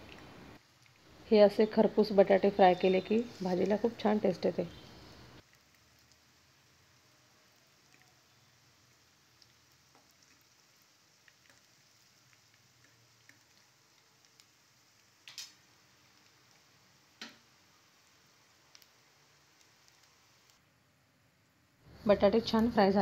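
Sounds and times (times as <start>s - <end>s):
potatoes sizzling in oil: 0.0s - 20.6s.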